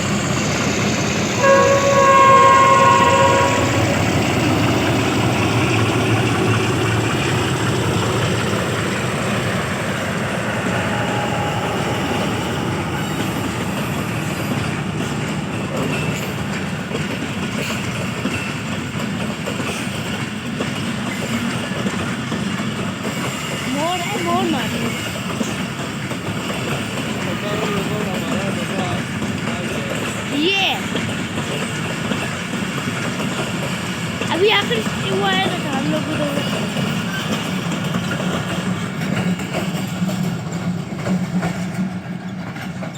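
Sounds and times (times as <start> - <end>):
train rumble and clatter: 0.0 - 42.9
train horn: 1.2 - 4.7, 9.8 - 17.1.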